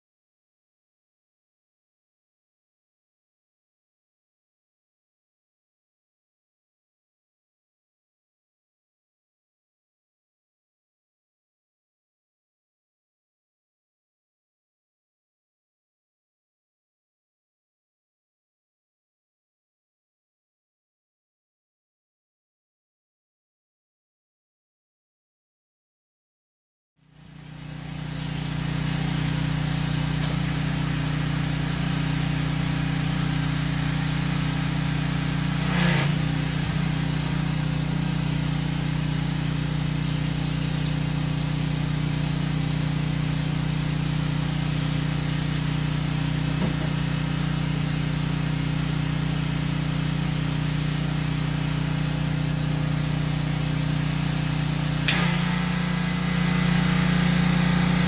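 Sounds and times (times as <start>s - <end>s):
motor humming: 27.2s - 58.0s.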